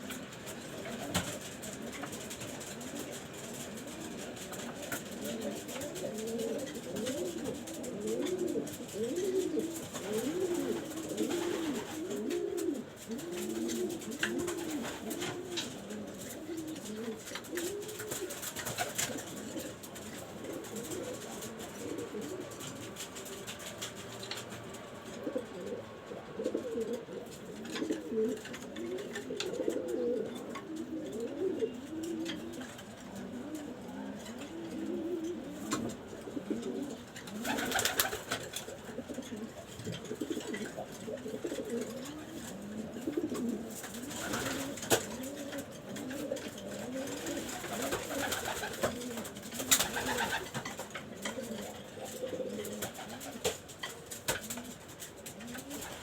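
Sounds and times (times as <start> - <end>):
pigeons cooing: 0.0 - 56.0.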